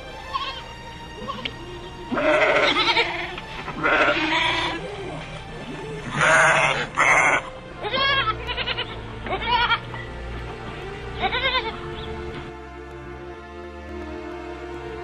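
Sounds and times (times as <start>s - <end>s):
background music: 0.0s - 15.0s
loud animal calls: 1.2s - 9.9s, 11.1s - 12.4s.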